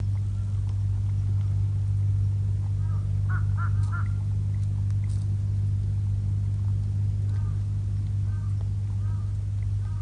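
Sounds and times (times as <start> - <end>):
bird calls: 0.0 - 1.6, 2.7 - 4.3, 7.2 - 10.0.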